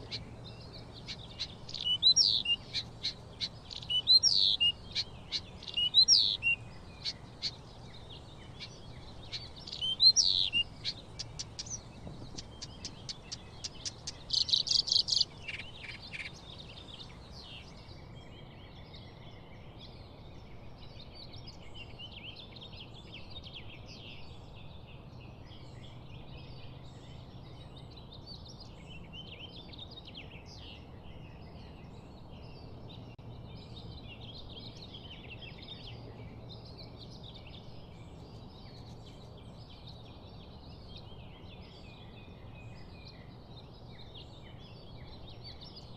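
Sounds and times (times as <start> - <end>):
birds chirping and calling: 0.0 - 17.8.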